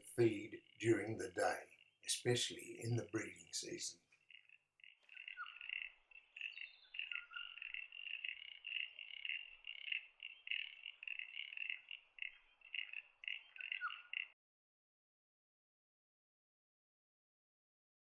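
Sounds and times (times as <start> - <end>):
frogs calling in chorus: 0.0 - 14.4.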